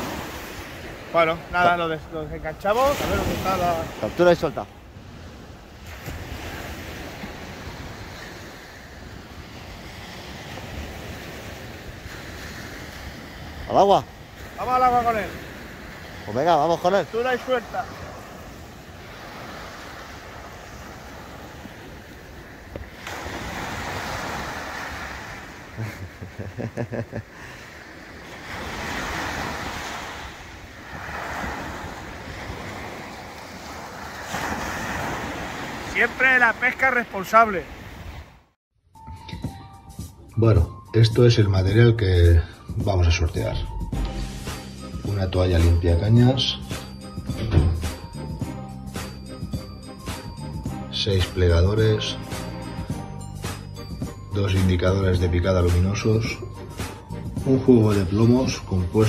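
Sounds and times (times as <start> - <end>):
surf washing on beach: 0.0 - 38.4
sea waves breaking on shore: 0.0 - 38.6, 43.4 - 59.0
wind on microphone: 27.9 - 35.8.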